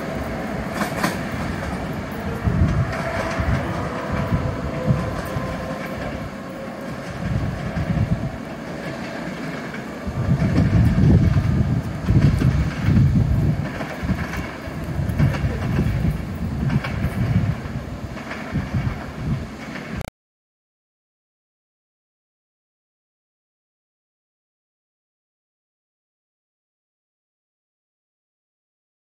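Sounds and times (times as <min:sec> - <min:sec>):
steady tone: 0:00.0 - 0:18.1
train rumbling: 0:00.0 - 0:20.1.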